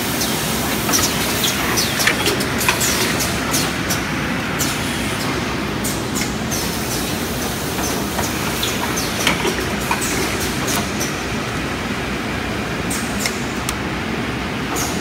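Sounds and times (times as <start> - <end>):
paper cutting machine running: 0.0 - 15.0
sharp machine clacks: 0.8 - 5.4.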